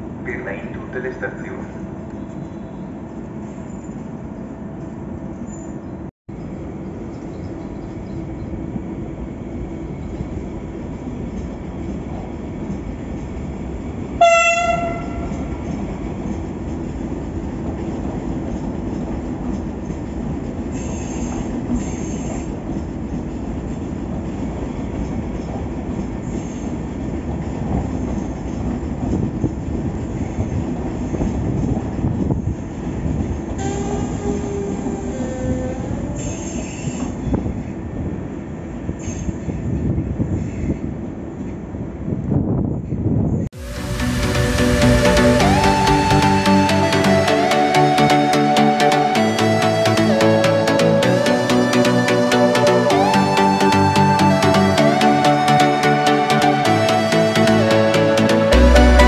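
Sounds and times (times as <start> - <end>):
electric train rumble: 0.0 - 59.0
train horn blast: 14.2 - 15.5.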